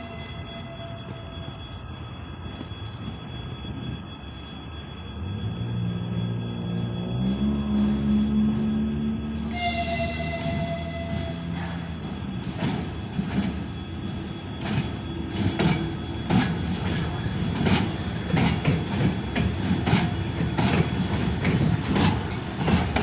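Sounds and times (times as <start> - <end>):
train wheels clacking: 9.5 - 23.0.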